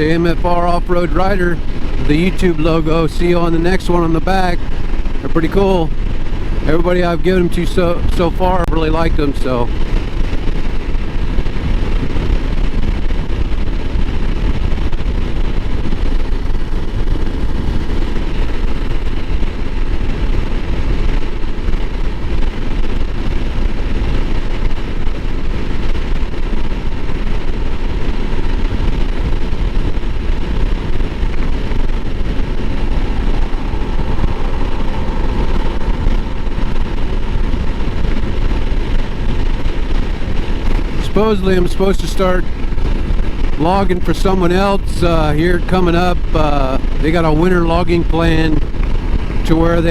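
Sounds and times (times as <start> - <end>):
wind rush on microphone: 0.0 - 49.9
motorcycle engine cruising: 9.1 - 41.4.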